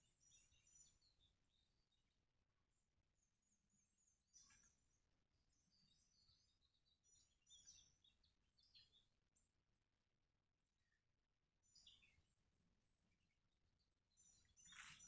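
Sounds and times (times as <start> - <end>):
birds chirping and trilling: 0.0 - 1.9, 3.4 - 9.1, 11.6 - 13.2, 14.1 - 15.0.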